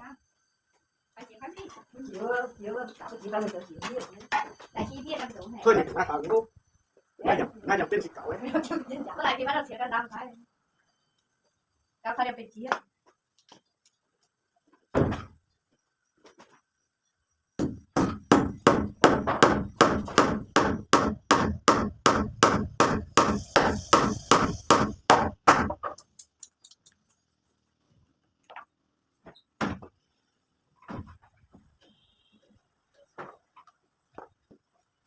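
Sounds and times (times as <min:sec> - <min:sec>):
hand tool striking: 0:17.6 - 0:26.4.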